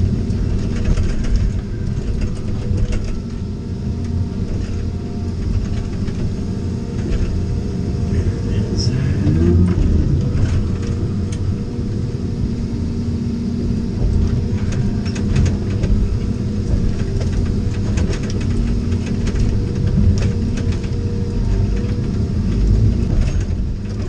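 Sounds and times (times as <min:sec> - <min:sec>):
vehicle engine and tyre rumble: 0:00.0 - 0:24.0
sharp clicks and knocks: 0:00.3 - 0:03.4, 0:14.0 - 0:24.0.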